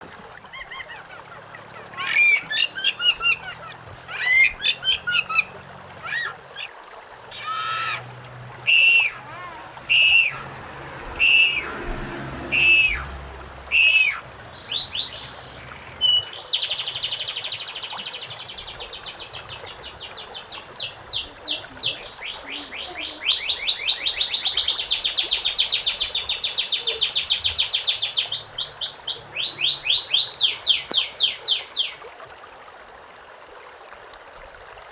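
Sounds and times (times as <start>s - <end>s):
faint running water: 0.0s - 34.9s
songbirds singing: 0.6s - 6.7s, 7.3s - 32.0s
rapid bird trill: 8.7s - 10.5s, 11.2s - 11.9s, 12.5s - 32.0s.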